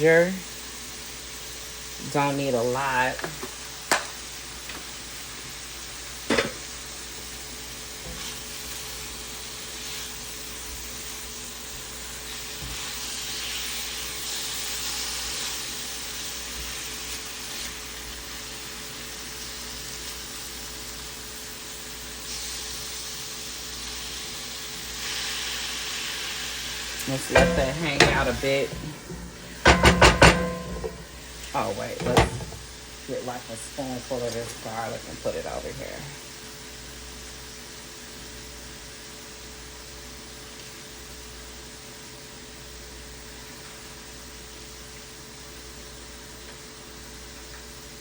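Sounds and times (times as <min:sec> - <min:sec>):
food sizzling in a skillet: 0:00.0 - 0:44.2
knock: 0:27.4 - 0:31.1.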